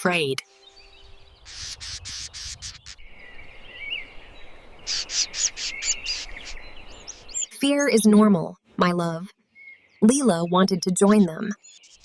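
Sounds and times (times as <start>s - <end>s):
birds chirping: 0.0s - 8.4s, 9.4s - 12.0s
bird warbling call: 0.6s - 7.6s.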